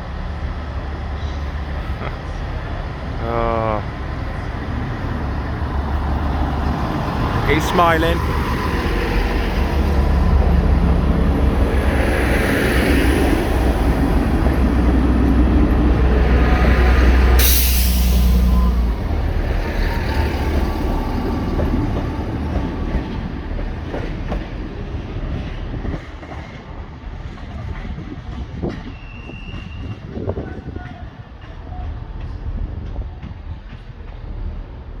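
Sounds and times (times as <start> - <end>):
train engine and wheel rumble: 0.0 - 35.0
air hiss: 17.4 - 18.8.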